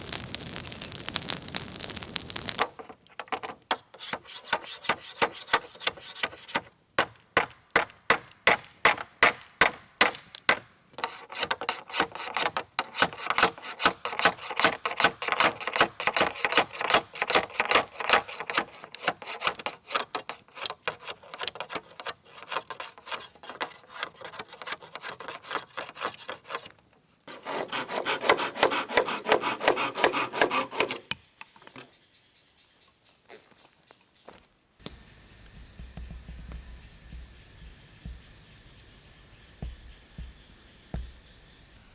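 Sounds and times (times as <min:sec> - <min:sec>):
hand saw cutting bamboo: 0:03.7 - 0:26.7, 0:27.3 - 0:31.2.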